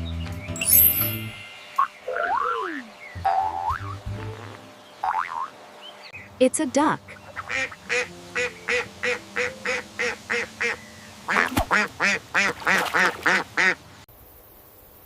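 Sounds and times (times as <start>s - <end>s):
duck quacking: 7.1s - 13.8s.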